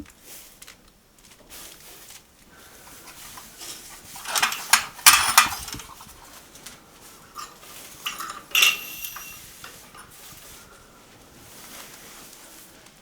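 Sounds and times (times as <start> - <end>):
dishes and utensils clattering: 2.8 - 6.6, 7.2 - 10.6.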